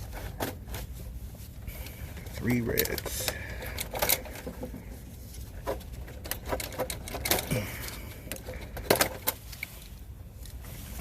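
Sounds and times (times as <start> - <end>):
tools and metal clicking: 2.7 - 4.7, 5.7 - 9.6.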